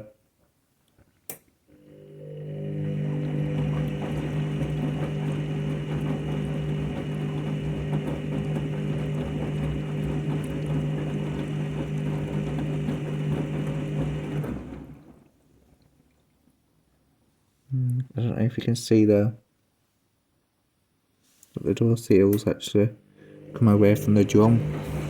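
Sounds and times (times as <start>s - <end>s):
washing machine running: 1.7s - 15.3s, 23.1s - 25.0s.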